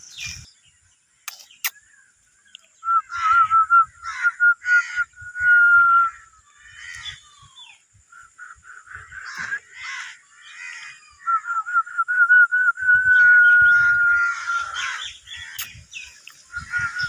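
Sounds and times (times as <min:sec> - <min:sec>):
sharp clicks: 0:01.2 - 0:01.8
high warbling bird whistle: 0:02.8 - 0:06.2, 0:11.1 - 0:17.0
harsh caw-like bird calls: 0:03.0 - 0:05.2, 0:06.1 - 0:11.4, 0:13.7 - 0:17.0.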